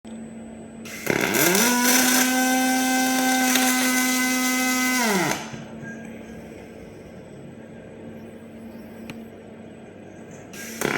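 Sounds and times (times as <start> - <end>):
machine motor whining and hissing: 0.9 - 5.6, 10.6 - 10.9.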